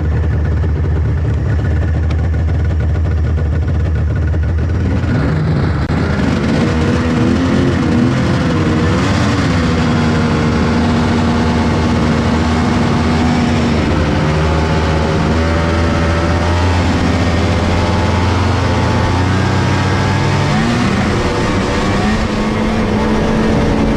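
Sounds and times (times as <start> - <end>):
two-stroke engine running: 0.0 - 23.9.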